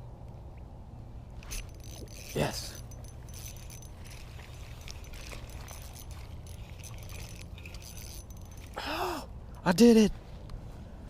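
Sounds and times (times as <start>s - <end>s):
fishing reel clicks and rattles: 1.4s - 8.9s.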